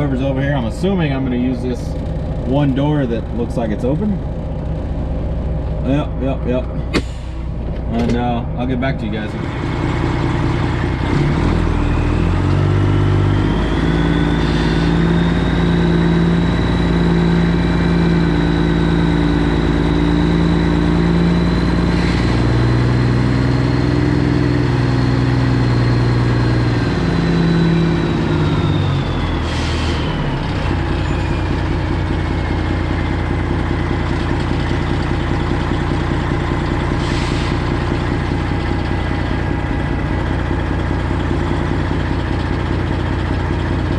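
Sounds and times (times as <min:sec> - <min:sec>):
diesel truck engine idling: 0:00.0 - 0:43.9.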